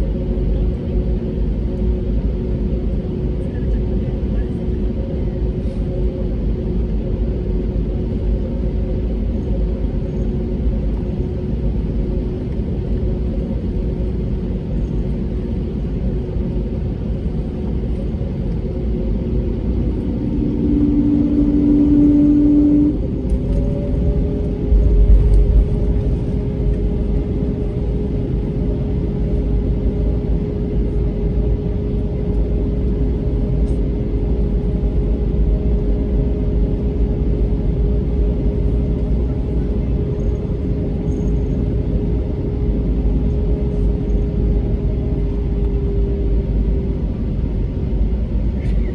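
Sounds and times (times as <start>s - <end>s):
airplane cabin rumble: 0.0s - 48.9s
brief steady tone: 19.9s - 24.2s.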